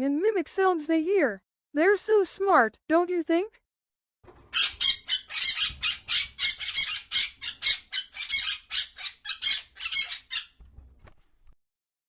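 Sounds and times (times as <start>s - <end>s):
parrot squawking: 4.5s - 10.6s.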